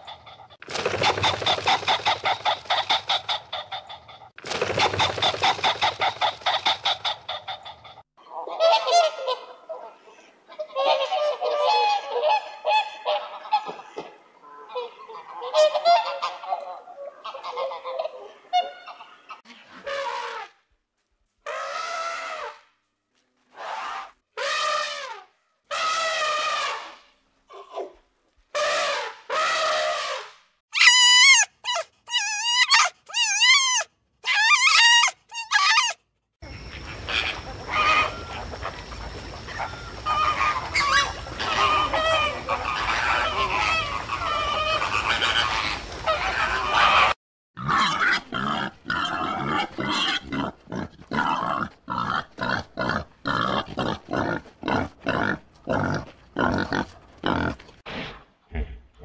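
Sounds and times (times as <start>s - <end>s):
overlapping animal sounds: 0.0s - 13.9s, 36.6s - 57.8s
high wavering animal cries: 30.8s - 36.0s, 39.5s - 48.3s.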